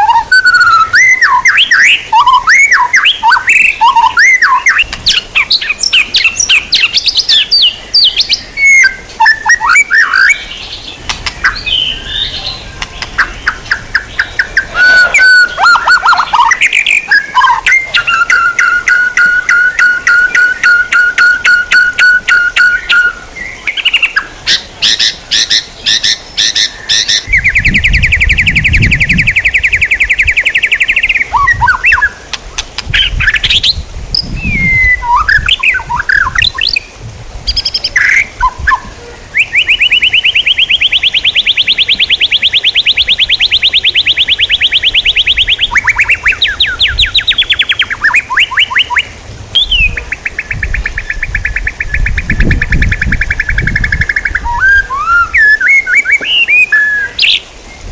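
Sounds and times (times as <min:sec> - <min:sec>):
bird whistled notes and chirps: 0:00.0 - 0:36.9, 0:37.5 - 0:57.9
songbird trilling: 0:00.0 - 0:57.9
bird sharp clicking notes: 0:04.5 - 0:05.2, 0:11.0 - 0:11.7, 0:12.8 - 0:15.2, 0:30.8 - 0:33.6.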